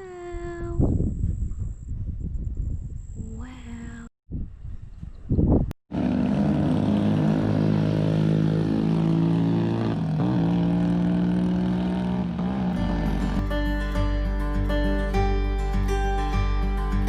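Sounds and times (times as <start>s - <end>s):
motorbike engine running: 5.9s - 13.7s.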